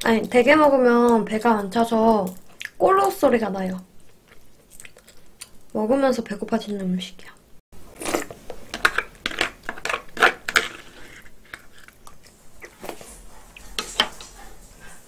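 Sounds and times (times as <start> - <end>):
person chewing: 1.6 - 2.8, 4.0 - 5.7, 7.8 - 14.5.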